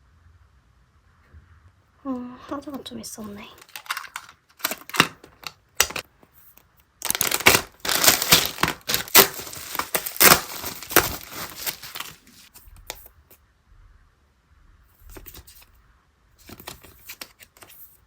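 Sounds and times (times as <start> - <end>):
packaging crackling and rustling: 3.2 - 6.1, 7.0 - 13.1, 15.1 - 15.7, 16.4 - 18.0
packaging ripping: 3.6 - 6.0, 7.0 - 13.0, 16.4 - 17.8.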